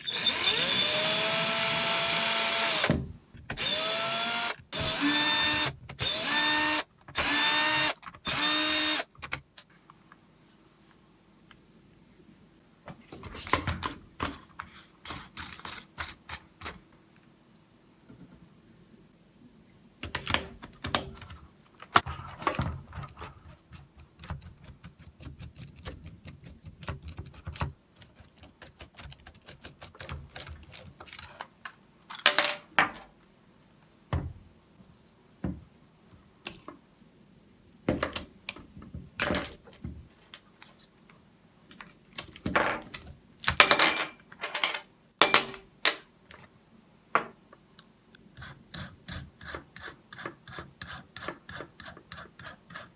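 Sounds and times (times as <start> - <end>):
small parts and tools clicking: 20.0 - 32.6.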